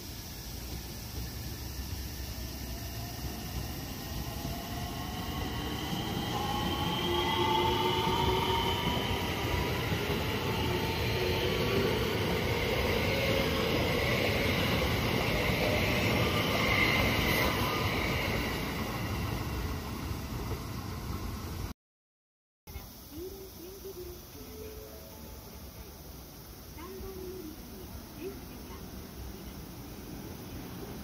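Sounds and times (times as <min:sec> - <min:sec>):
train wheels rumbling on rails: 0:00.0 - 0:21.7.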